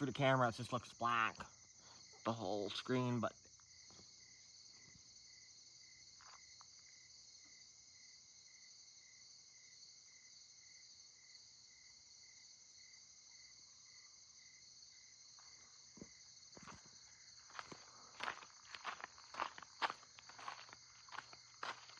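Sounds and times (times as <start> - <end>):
crickets chirping: 0.0 - 21.9.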